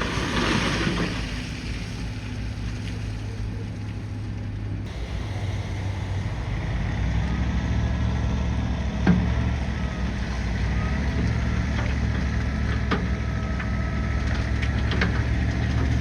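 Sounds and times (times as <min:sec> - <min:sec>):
diesel engine humming: 0:00.0 - 0:16.0
wash of noise: 0:00.0 - 0:16.0.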